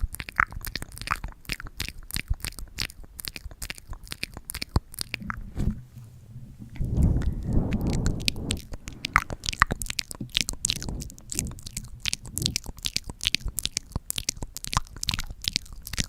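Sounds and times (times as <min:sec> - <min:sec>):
muffled low rubbing: 0:05.1 - 0:13.2.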